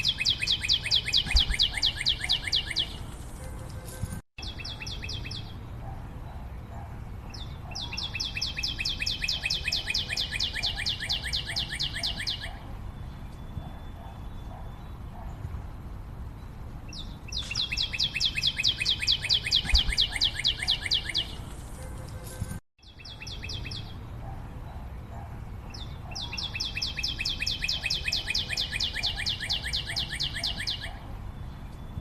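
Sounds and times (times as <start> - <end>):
songbird high trill: 0.0 - 3.1, 7.3 - 12.6, 16.9 - 21.4, 25.7 - 31.0.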